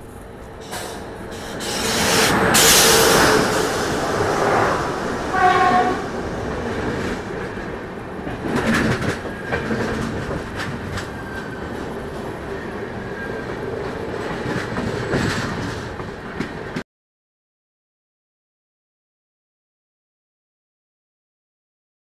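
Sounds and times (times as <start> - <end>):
passing train rumble: 0.0 - 16.8
wheels clattering over rail joints: 6.5 - 16.8.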